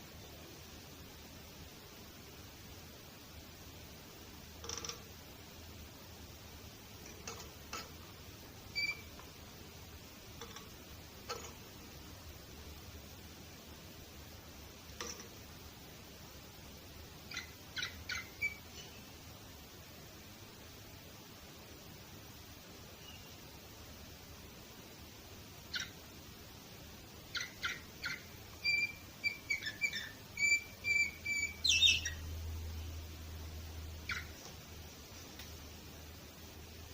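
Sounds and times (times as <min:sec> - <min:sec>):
low steady hum: 0:00.0 - 0:36.9
canary chirps: 0:04.6 - 0:05.1, 0:07.0 - 0:09.4, 0:17.1 - 0:19.2, 0:22.8 - 0:23.5, 0:25.6 - 0:26.1, 0:27.2 - 0:33.0, 0:33.9 - 0:34.6.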